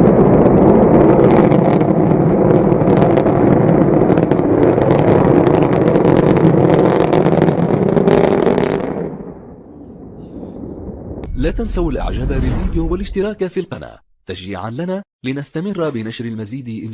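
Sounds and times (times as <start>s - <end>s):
rocket engine rumble: 0.0s - 14.0s.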